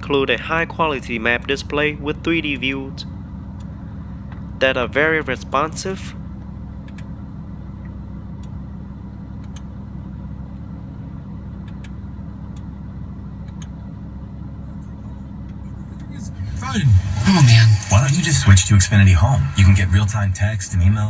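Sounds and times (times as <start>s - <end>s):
car engine idling: 0.0s - 21.0s
faint clicks: 13.4s - 13.8s.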